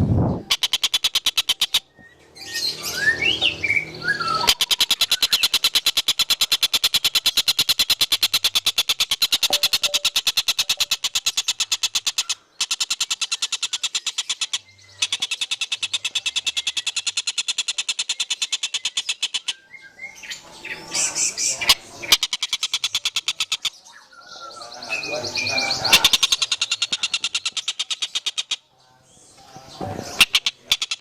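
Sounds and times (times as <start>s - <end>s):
bird trilling: 0.0s - 28.7s, 29.8s - 31.0s
bird chirps: 0.0s - 31.0s.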